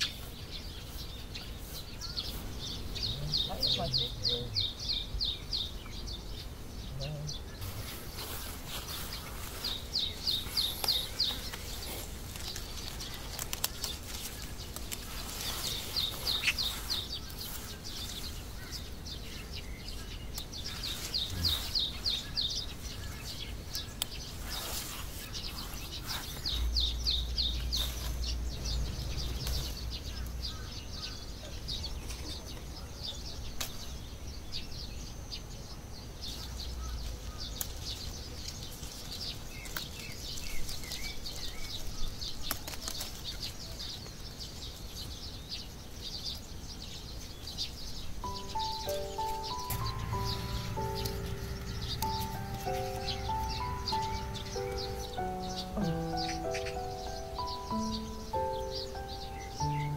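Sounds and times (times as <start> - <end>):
songbird trilling: 0.0 - 8.4, 15.5 - 32.2, 48.0 - 59.9
outdoor background noise: 0.0 - 59.9
low rumble: 49.8 - 55.1.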